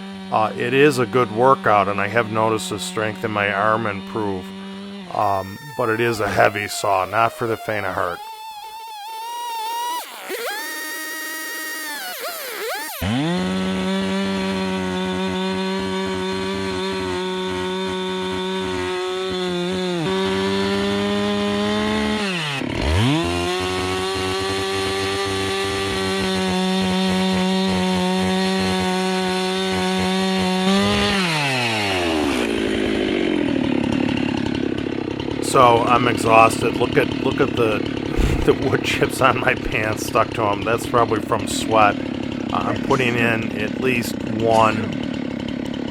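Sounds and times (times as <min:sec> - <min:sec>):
chainsaw cutting wood: 0:00.0 - 0:45.9.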